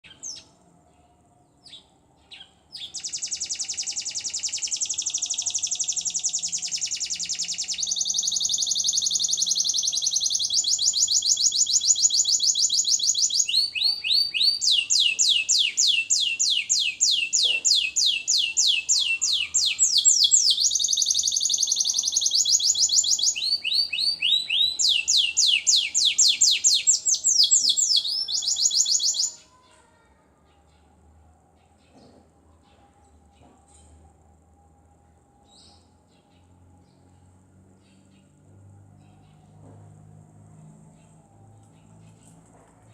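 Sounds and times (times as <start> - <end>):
canary singing trills: 1.6 - 29.6.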